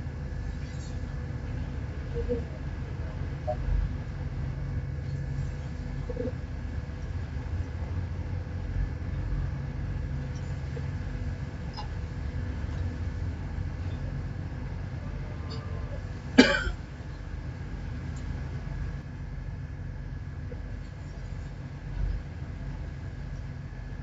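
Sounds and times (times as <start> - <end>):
boat engine rumbling: 0.0 - 24.0
engine cough: 15.6 - 16.8.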